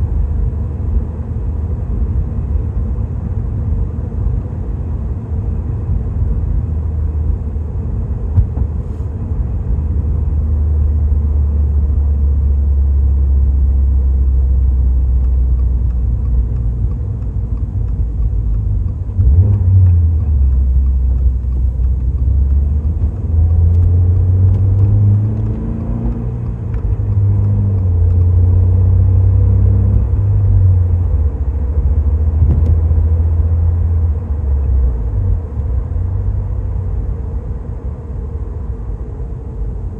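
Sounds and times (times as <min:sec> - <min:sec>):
car exhaust drone: 0:00.0 - 0:39.9.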